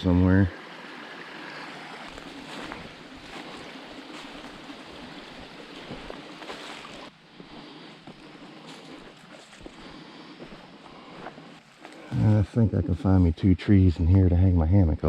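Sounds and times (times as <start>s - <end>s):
rushing mountain stream: 0.0s - 7.2s.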